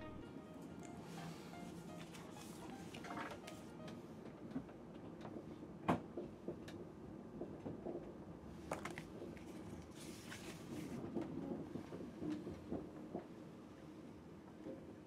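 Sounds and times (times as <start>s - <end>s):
train rumble inside cabin: 10.0s - 15.0s.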